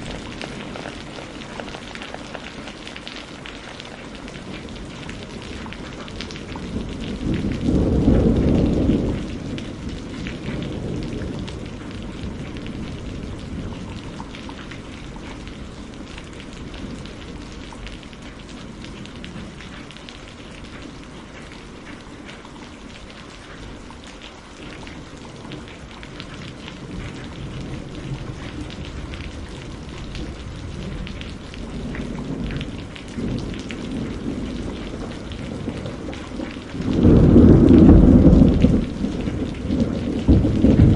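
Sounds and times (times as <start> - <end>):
steady rain: 0.0 - 40.9
thunder rolling: 4.5 - 17.6, 26.4 - 40.9.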